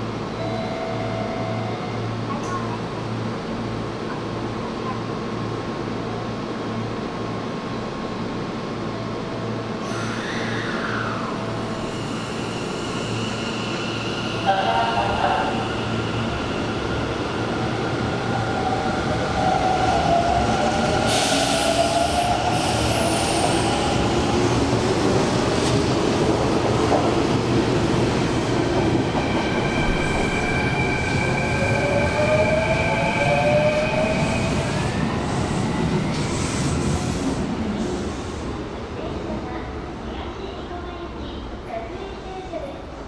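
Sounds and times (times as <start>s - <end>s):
train wheels rumbling on rail: 9.8s - 43.0s.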